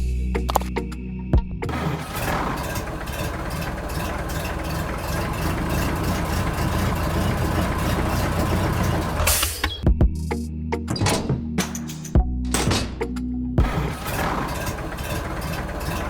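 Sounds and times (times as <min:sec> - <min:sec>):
small engine chugging at idle: 0:01.7 - 0:09.4, 0:13.6 - 0:16.0.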